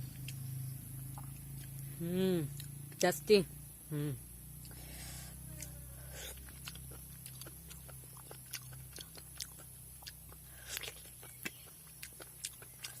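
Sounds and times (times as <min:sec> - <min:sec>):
steady low hum: 0:00.0 - 0:13.0
person chewing: 0:00.1 - 0:01.9, 0:02.5 - 0:02.8, 0:04.6 - 0:05.0, 0:05.6 - 0:13.0.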